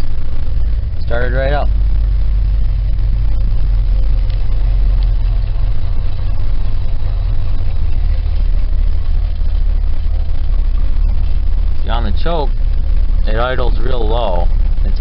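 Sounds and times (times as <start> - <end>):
car engine idling: 0.0 - 15.0
man talking: 1.0 - 1.7, 11.8 - 12.5, 13.2 - 15.0.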